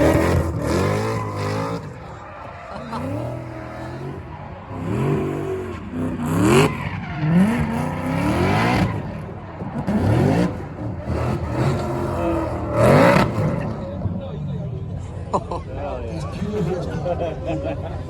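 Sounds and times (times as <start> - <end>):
car engine revving hard: 0.0 - 14.0.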